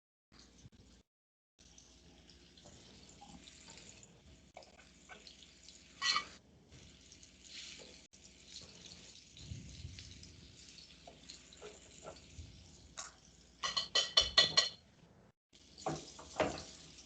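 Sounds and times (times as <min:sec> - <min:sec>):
chicken frying in oil: 0:01.6 - 0:14.4, 0:15.5 - 0:17.0.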